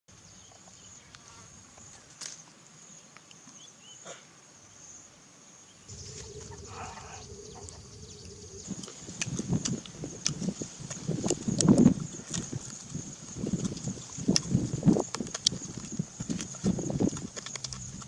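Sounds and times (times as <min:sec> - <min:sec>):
low hum and rumble: 0:05.9 - 0:11.4
high insect drone: 0:05.9 - 0:18.0.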